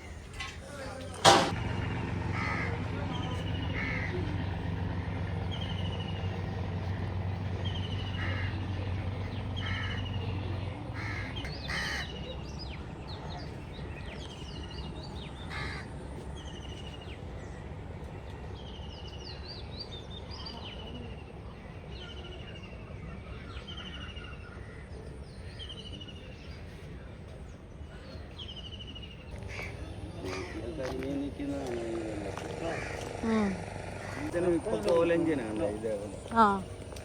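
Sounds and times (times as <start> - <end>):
steady low rumble: 29.3 - 37.0
bird buzzy call: 32.2 - 34.4.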